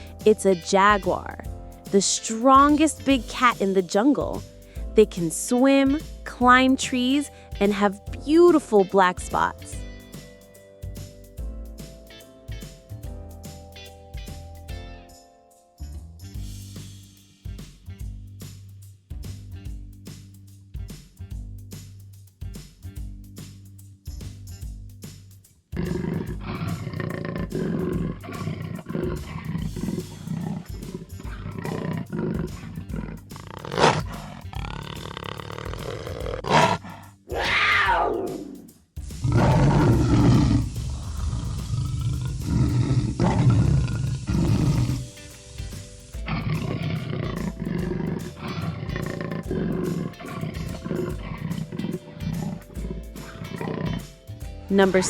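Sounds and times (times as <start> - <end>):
background music: 0.0 - 55.0
jaguar growling and roaring: 25.8 - 54.2.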